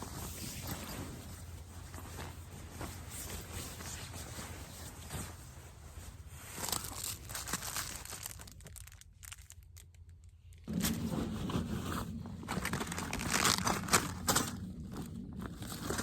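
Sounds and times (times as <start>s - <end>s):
crinkling and rustling: 0.0s - 16.0s
steady low hum: 10.2s - 16.0s.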